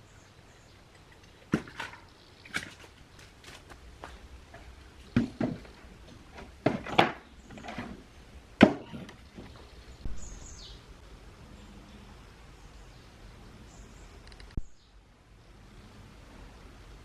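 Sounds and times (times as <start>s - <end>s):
objects knocking on hard surface: 4.0s - 7.9s.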